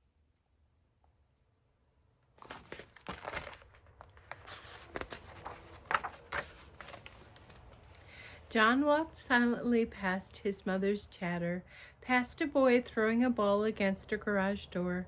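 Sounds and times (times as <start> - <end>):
book pages crinkling and turning: 2.4 - 8.1.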